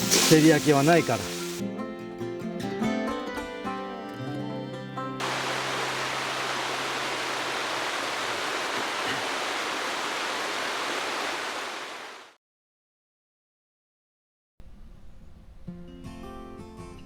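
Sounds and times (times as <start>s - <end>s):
rushing water: 0.0s - 1.6s, 5.2s - 12.4s.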